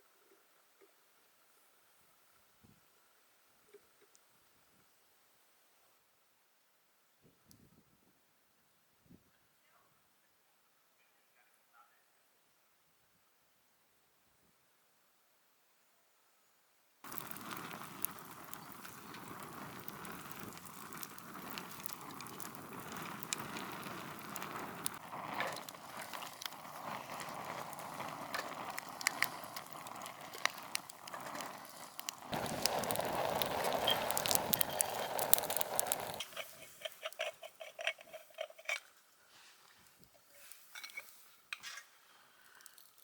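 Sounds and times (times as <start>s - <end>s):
campfire crackling and popping: 17.0s - 38.9s, 39.8s - 43.0s.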